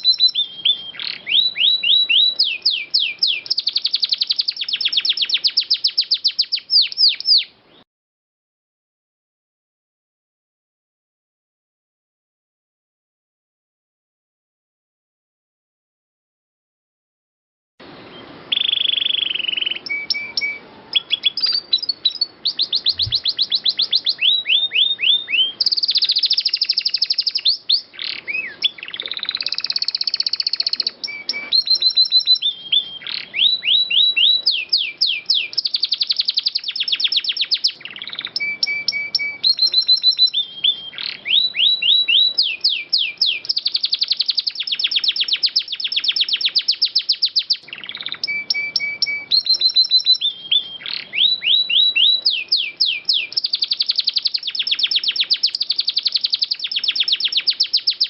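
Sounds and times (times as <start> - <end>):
canary singing: 0.0 - 7.8, 17.8 - 58.0.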